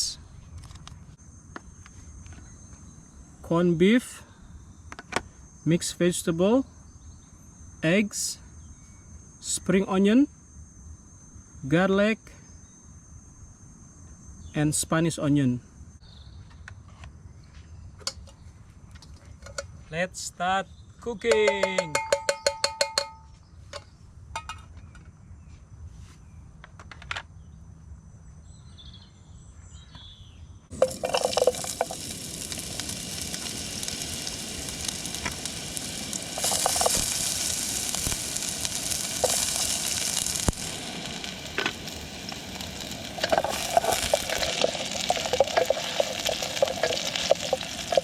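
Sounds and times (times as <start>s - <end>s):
onion and garlic sizzling in oil: 30.7s - 48.0s.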